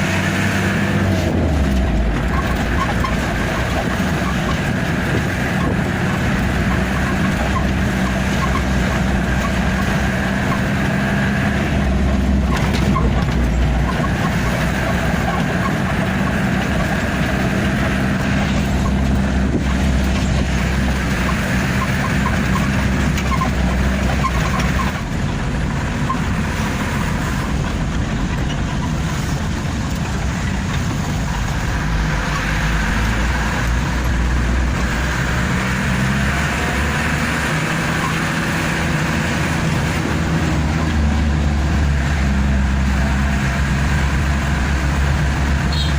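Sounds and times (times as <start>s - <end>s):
road noise: 0.0s - 45.9s
truck engine running: 0.0s - 45.9s.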